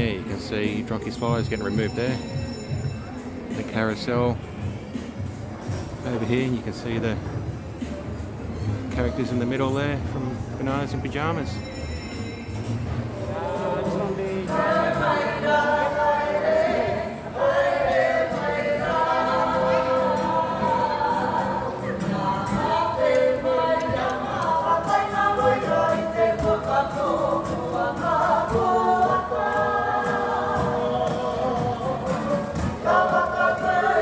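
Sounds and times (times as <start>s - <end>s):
choir singing in harmony: 13.1s - 34.0s.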